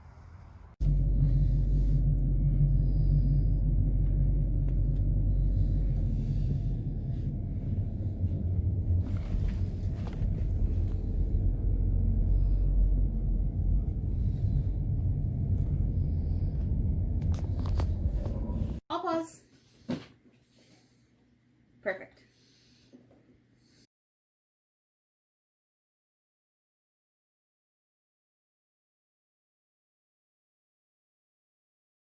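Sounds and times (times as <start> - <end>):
steady low rumble: 0.0 - 18.8.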